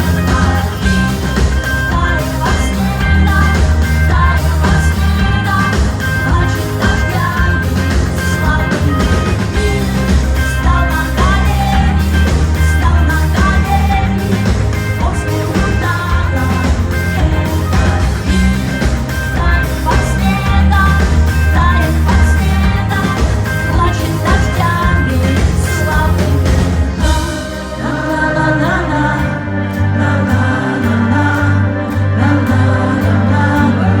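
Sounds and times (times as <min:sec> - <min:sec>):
live rock band playing: 0:00.0 - 0:34.0
person singing: 0:00.0 - 0:34.0
pulsing bass: 0:00.0 - 0:34.0.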